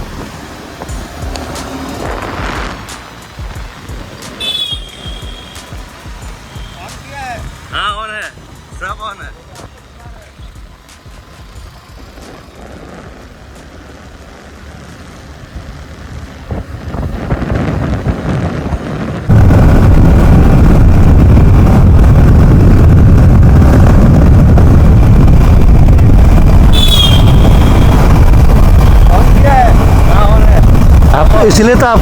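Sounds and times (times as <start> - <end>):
motorcycle engine: 0.0 - 32.0
road noise: 0.0 - 32.0
wind buffeting on microphone: 15.4 - 32.0.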